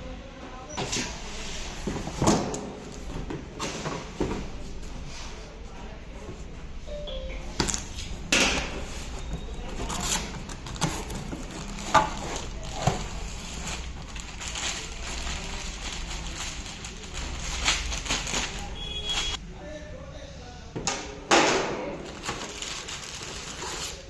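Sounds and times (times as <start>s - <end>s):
packaging rustling: 7.7s - 19.4s, 22.0s - 24.0s.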